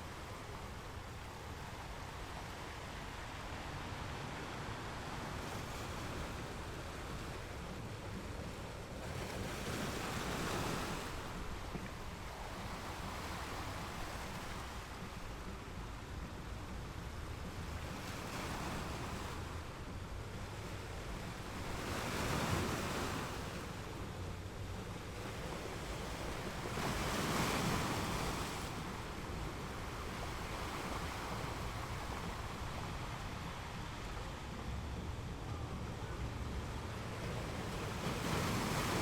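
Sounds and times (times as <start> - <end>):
ocean waves washing: 0.0 - 39.0
waves breaking: 0.0 - 39.0.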